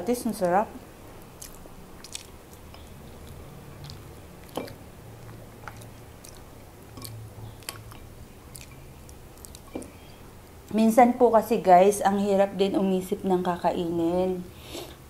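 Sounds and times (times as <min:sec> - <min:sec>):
soft chewing: 0:00.4 - 0:10.8.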